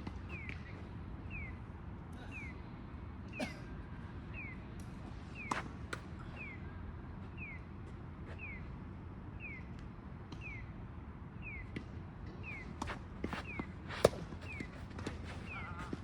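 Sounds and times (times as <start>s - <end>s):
tennis balls bouncing: 11.7s - 16.0s.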